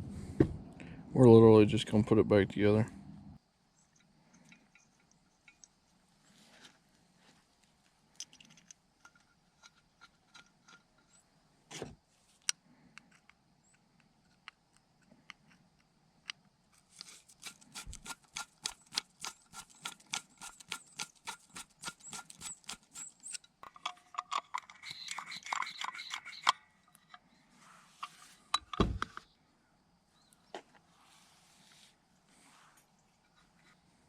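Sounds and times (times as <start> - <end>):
small metal parts clicking: 3.9 - 5.8, 8.1 - 11.2, 16.3 - 27.4.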